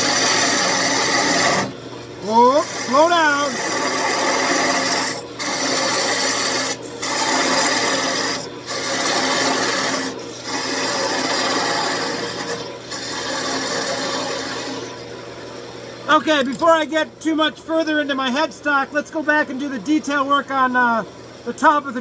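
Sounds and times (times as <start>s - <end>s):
turning tool scraping wood: 0.0s - 15.2s
lathe humming: 0.0s - 22.0s.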